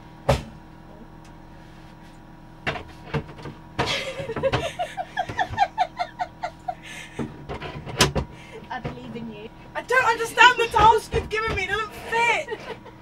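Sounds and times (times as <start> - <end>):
oven knocking and scraping: 2.6 - 6.2, 7.1 - 9.2, 10.3 - 12.7.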